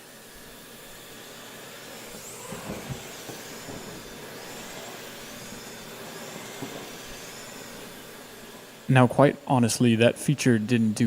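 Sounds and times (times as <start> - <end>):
vacuum cleaner running on rug: 0.0 - 11.0
faint high whistles: 1.0 - 8.8.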